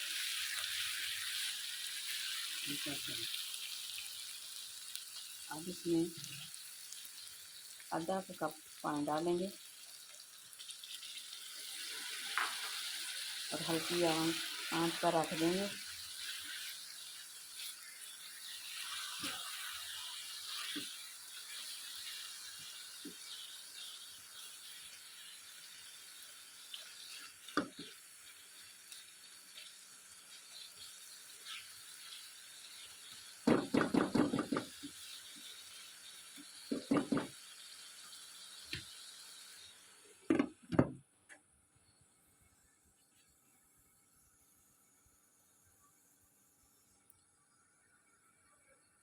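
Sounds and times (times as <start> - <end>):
curry simmering with hiss: 0.0 - 40.3
cookware knocking: 33.5 - 34.7, 36.7 - 37.3.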